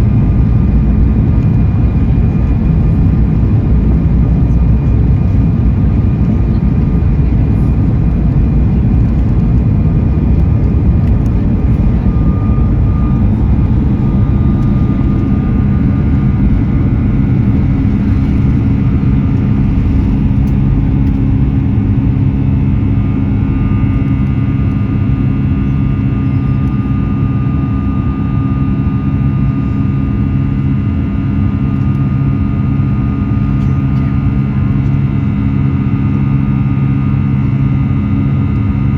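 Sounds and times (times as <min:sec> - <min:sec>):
jet engines rumbling in cabin: 0:00.0 - 0:38.9
engine whining tones: 0:06.0 - 0:25.4.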